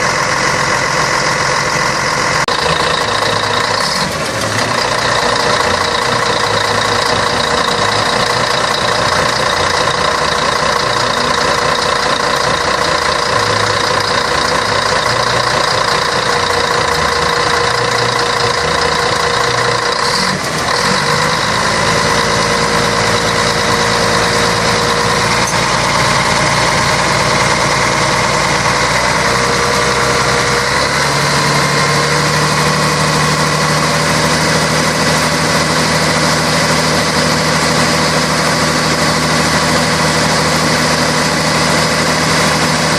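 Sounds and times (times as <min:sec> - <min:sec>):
bus diesel engine running: 0:00.0 - 0:42.9.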